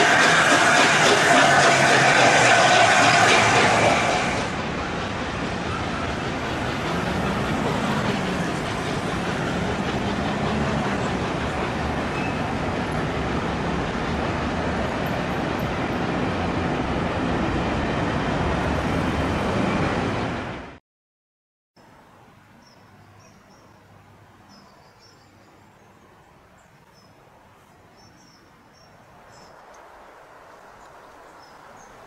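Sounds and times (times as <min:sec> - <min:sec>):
road traffic: 0:00.0 - 0:20.8, 0:21.8 - 0:32.0
train rumbling across bridge: 0:00.0 - 0:20.8.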